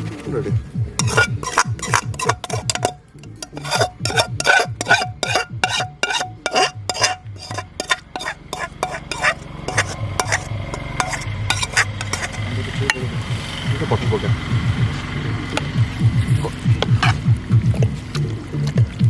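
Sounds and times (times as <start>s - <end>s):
metal ladle scraping a pot: 1.0s - 13.1s, 16.8s - 17.2s.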